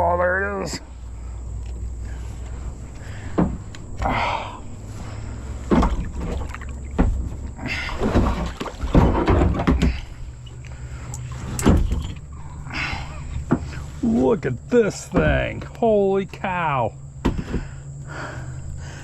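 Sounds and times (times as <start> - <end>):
knocks and scrapes on a kayak: 4.8 - 12.2, 13.3 - 15.8, 17.2 - 17.8.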